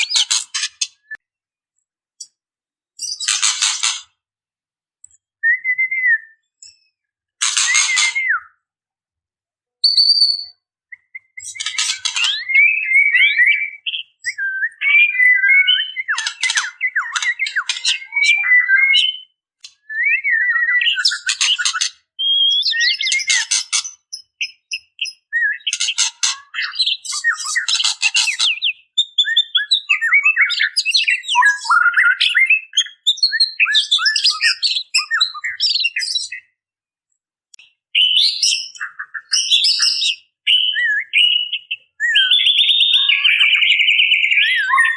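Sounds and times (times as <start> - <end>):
bird whistled notes: 7.4 - 8.6, 9.8 - 19.3, 38.0 - 44.9.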